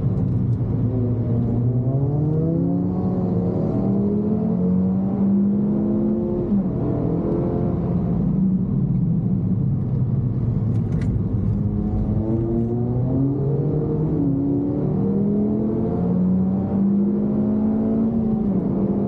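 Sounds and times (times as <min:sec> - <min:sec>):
car engine revving: 0:00.0 - 0:08.2, 0:10.7 - 0:19.0.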